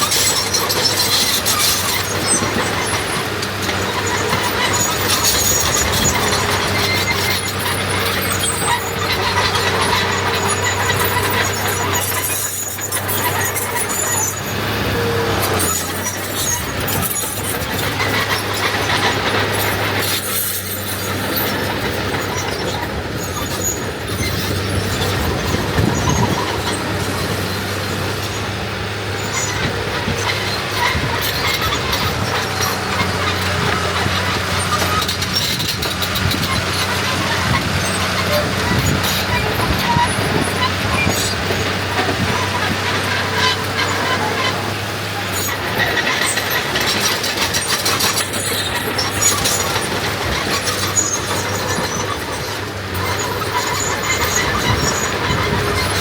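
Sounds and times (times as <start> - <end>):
heavy diesel machinery running: 0.0 - 56.0
metallic squealing and clatter: 0.0 - 56.0.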